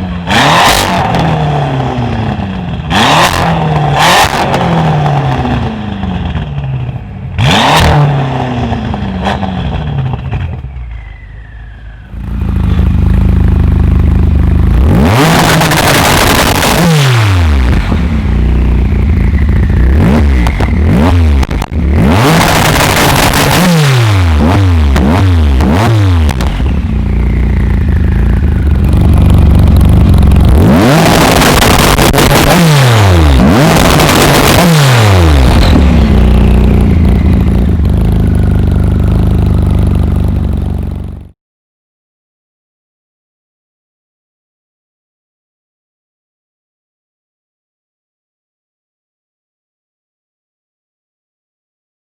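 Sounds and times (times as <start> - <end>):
car engine revving: 0.0 - 10.8, 12.1 - 41.3.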